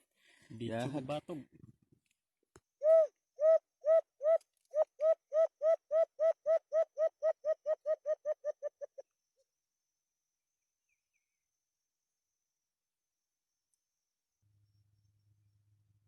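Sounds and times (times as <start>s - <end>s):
bird hooting call: 2.8s - 9.0s.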